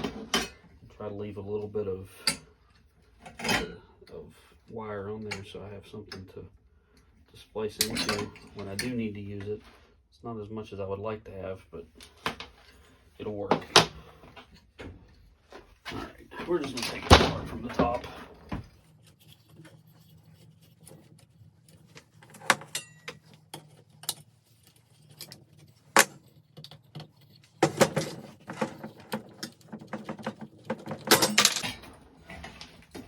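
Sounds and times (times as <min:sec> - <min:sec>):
ceiling fan parts clicking and rattling: 0:00.0 - 0:09.6, 0:11.9 - 0:33.0.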